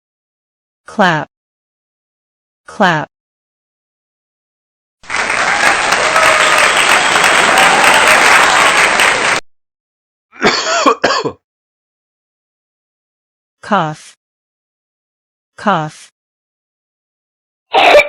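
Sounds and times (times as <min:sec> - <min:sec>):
applause: 0:05.0 - 0:09.4.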